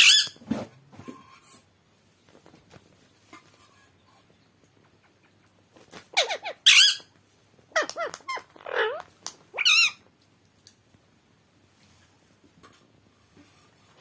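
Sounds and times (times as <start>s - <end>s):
parrot squeaky calls: 0.0s - 0.4s, 6.1s - 7.1s, 7.7s - 10.0s.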